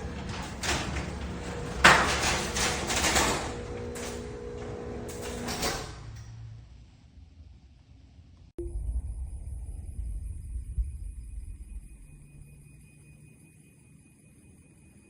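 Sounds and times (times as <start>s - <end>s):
door rattling along track: 0.0s - 6.4s
garage door opener running: 0.0s - 7.0s.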